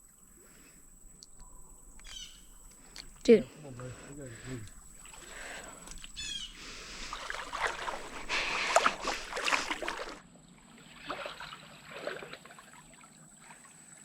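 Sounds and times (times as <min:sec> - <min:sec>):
water splashing while wading: 0:03.7 - 0:14.0.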